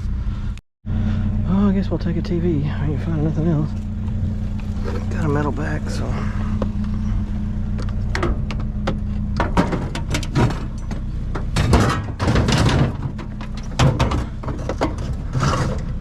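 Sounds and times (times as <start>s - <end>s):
vehicle engine idling: 0.0s - 16.0s
thunks and knocks of handling: 7.7s - 16.0s.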